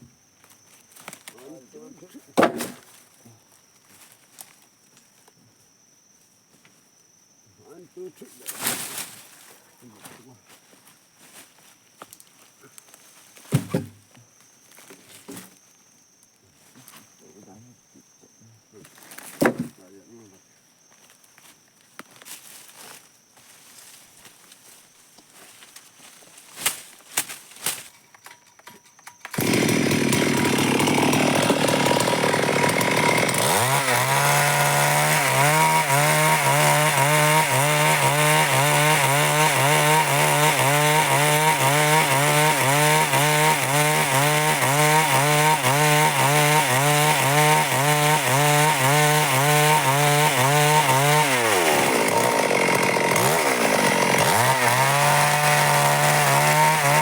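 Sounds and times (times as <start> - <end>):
chainsaw cutting wood: 2.4 - 2.8, 29.0 - 57.0.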